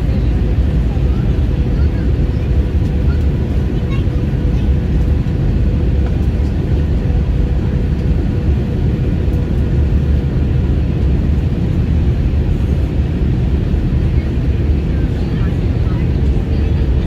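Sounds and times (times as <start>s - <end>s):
airliner engines and airflow rumble: 0.0s - 17.0s.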